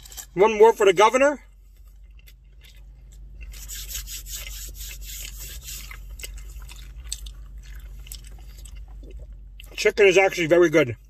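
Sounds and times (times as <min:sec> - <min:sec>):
person chewing food: 0:01.5 - 0:09.8.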